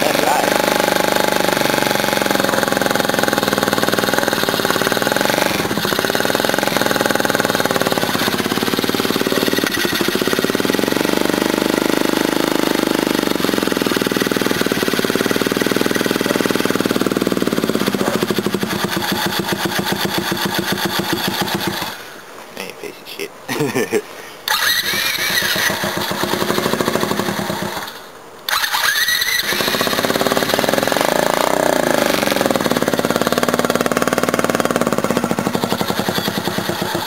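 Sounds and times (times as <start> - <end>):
small unmuffled engine running: 0.0 - 22.1, 24.5 - 37.0.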